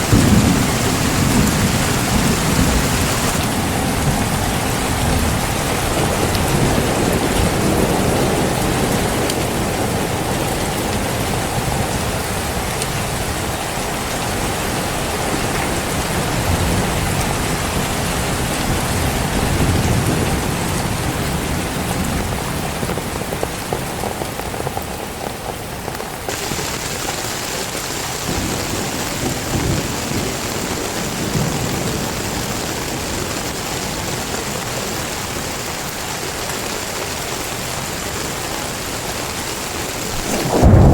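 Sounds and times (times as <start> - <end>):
thunder rumbling: 0.0 - 13.6, 26.3 - 34.6, 40.1 - 40.9
heavy rain pouring: 0.0 - 40.9.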